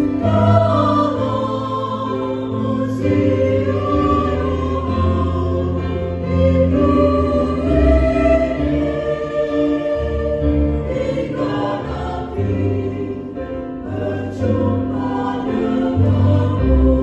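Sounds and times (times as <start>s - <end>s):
choir singing a hymn: 0.0s - 17.0s
organ and piano accompaniment: 0.0s - 17.0s.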